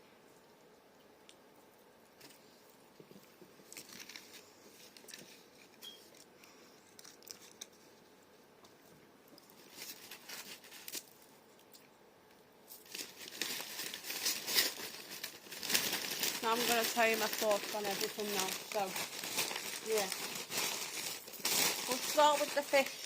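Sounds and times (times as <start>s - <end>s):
food packaging crinkling: 3.6s - 8.2s, 9.4s - 11.9s, 12.7s - 23.0s.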